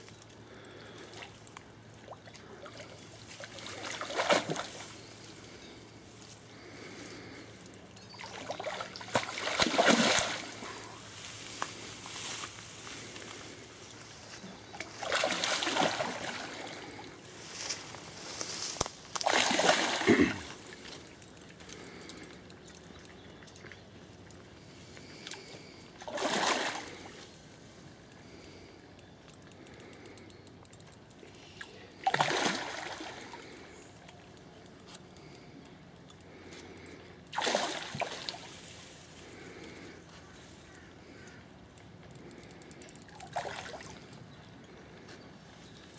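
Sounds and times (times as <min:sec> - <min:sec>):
fish splashing and thrashing in water: 0:02.1 - 0:05.1, 0:08.2 - 0:10.7, 0:14.7 - 0:17.1, 0:19.1 - 0:21.0, 0:25.3 - 0:27.2, 0:32.0 - 0:33.6, 0:37.3 - 0:38.6, 0:43.1 - 0:44.1.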